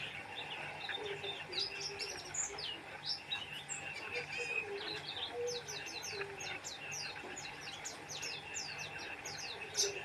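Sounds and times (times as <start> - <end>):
bird singing high chirps: 0.0 - 10.0
bird trill: 0.0 - 10.0.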